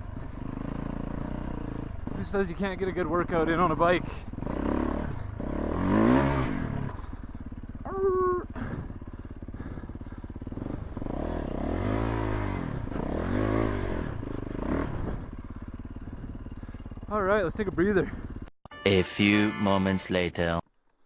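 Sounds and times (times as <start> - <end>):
motorcycle engine revving: 0.0 - 18.5
brief high steady tone: 18.7 - 20.6.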